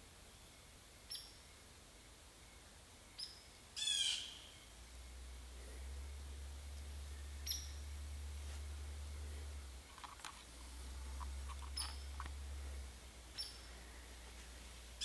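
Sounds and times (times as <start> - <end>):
steady low rumble: 4.6 - 15.0.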